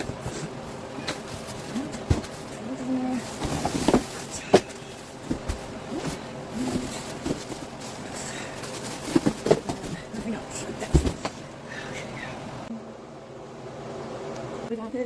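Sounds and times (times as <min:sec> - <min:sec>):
cardboard and plastic being handled: 0:00.0 - 0:11.4.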